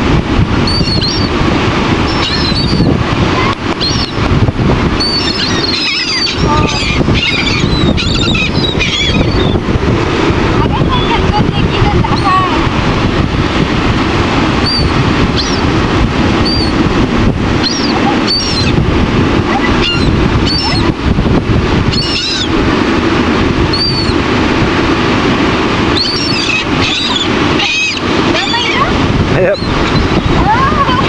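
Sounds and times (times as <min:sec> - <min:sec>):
surf rushing: 0:00.0 - 0:31.0
wind buffeting microphone: 0:00.0 - 0:31.0
seagulls crying: 0:00.6 - 0:01.4, 0:02.0 - 0:04.3, 0:05.0 - 0:09.6, 0:10.7 - 0:12.6, 0:14.6 - 0:15.7, 0:16.4 - 0:16.8, 0:17.6 - 0:18.8, 0:19.5 - 0:20.9, 0:21.8 - 0:22.6, 0:23.7 - 0:24.2, 0:25.9 - 0:31.0.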